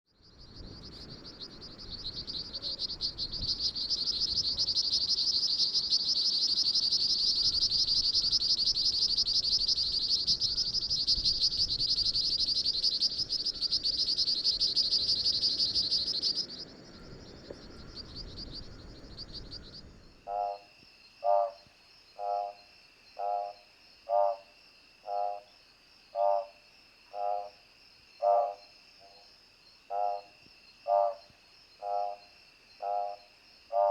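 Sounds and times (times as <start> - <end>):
frog pulsed low notes: 0.2 - 20.6
high insect drone: 0.2 - 33.9
frog rapid clicking call: 0.4 - 27.6, 28.2 - 29.2, 29.9 - 33.9.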